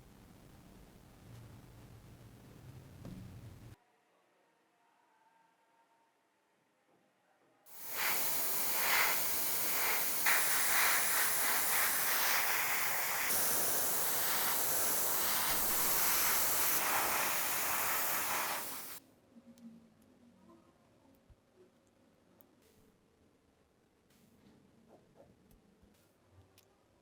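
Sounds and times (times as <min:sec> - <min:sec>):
pressurized spray hissing: 0:07.7 - 0:19.0.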